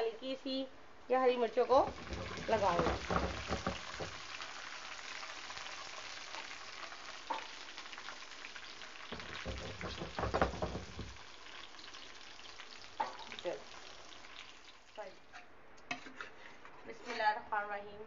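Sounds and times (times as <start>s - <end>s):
onions sizzling in hot oil: 1.3s - 15.4s.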